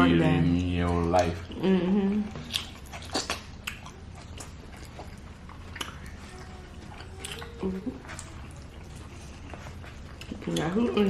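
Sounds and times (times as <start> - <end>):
close chewing and mouth clicks: 0.6 - 11.0
child whining: 6.2 - 8.6.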